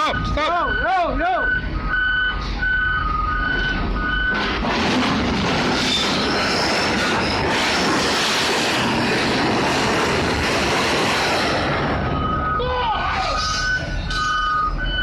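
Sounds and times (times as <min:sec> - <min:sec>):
train wheels rumbling on track: 0:02.3 - 0:12.6
high-pitched wheel squeals: 0:05.8 - 0:07.4, 0:12.2 - 0:15.0.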